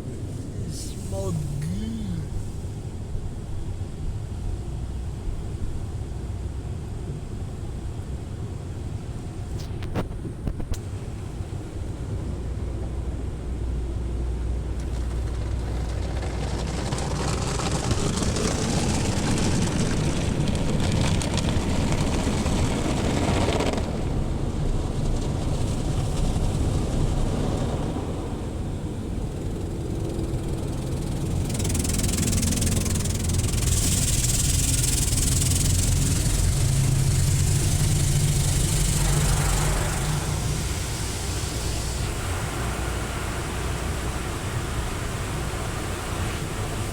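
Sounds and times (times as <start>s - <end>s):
water spray hissing on car: 0.1s - 2.9s, 14.7s - 23.9s, 28.6s - 46.9s
low rumble: 23.9s - 42.2s.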